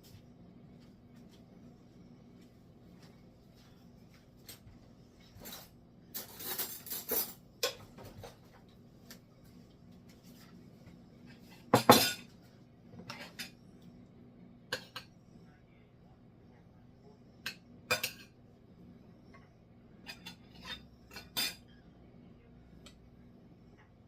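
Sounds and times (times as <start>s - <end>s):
utensils clinking on pan and plate: 5.3s - 8.4s, 11.4s - 12.3s, 14.7s - 15.1s, 17.5s - 18.4s, 20.0s - 21.7s.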